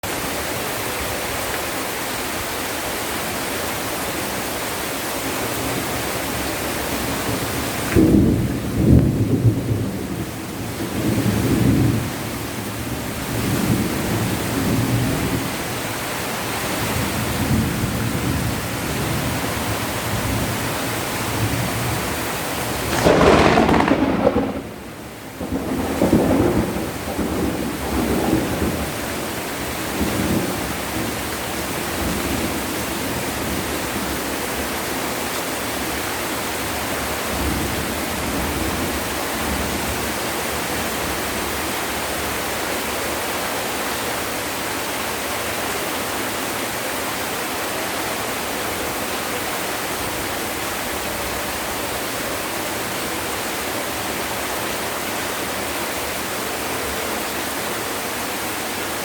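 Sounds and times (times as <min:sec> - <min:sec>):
heavy rain pouring: 0:00.0 - 0:59.0
thunder rumbling: 0:16.9 - 0:33.7.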